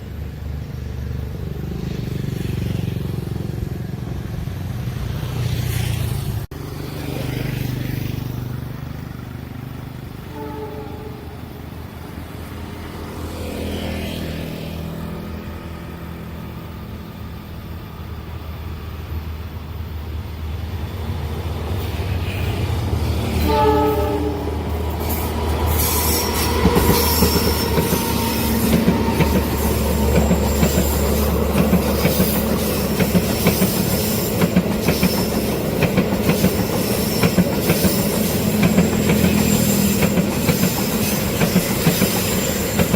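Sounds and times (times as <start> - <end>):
diesel locomotive engine rumble: 0.0 - 6.6, 14.8 - 42.9
train horn: 10.3 - 11.6, 23.3 - 24.7
wheels clicking over rail joints: 24.8 - 42.9
wheels squealing on track: 25.0 - 42.9.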